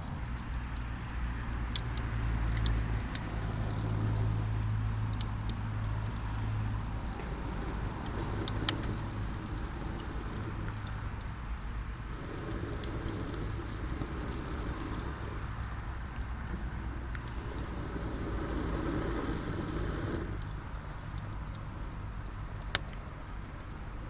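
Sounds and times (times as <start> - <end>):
campfire crackling: 0.0 - 24.0
fire pops and snaps: 0.2 - 23.9.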